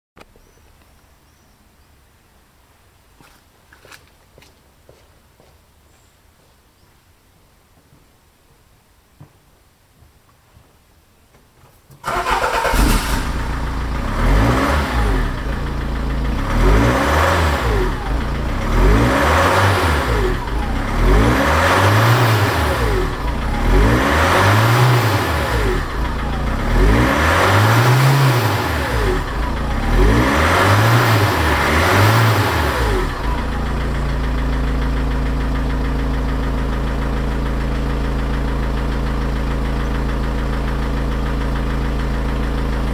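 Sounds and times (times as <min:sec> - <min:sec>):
van engine idling: 0:12.0 - 0:42.9
van engine revving: 0:12.0 - 0:42.9.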